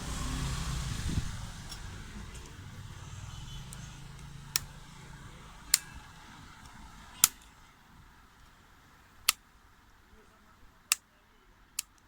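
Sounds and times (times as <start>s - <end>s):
low hum: 0.0s - 8.1s
sharp short clicks: 11.8s - 12.0s.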